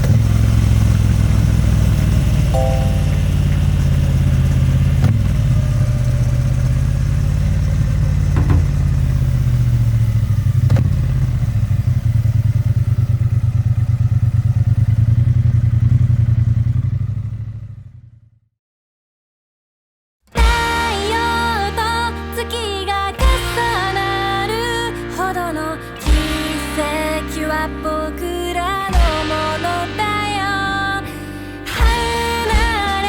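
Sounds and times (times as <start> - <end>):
motorcycle engine running: 0.0 - 18.3, 28.4 - 33.0.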